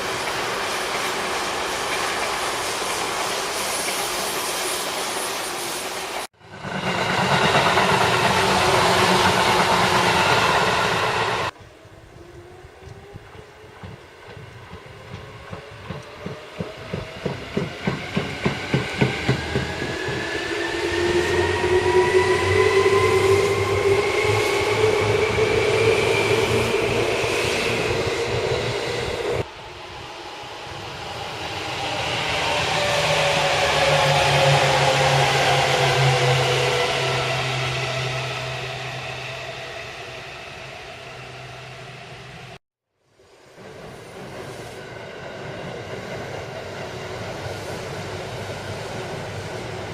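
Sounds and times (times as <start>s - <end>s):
electric train running: 0.0s - 11.5s
train wheels clacking over rail joints: 13.7s - 20.3s.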